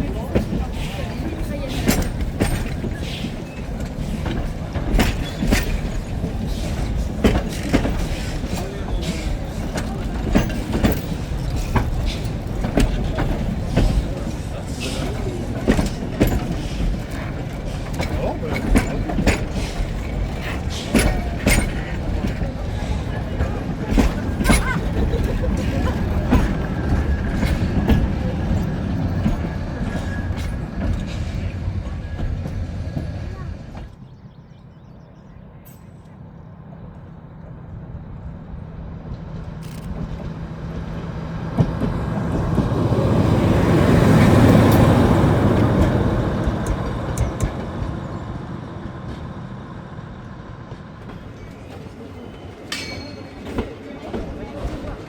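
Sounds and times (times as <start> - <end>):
wheels clanking and clicking: 0.0 - 34.0, 50.7 - 55.0
train rumbling past: 0.0 - 55.0.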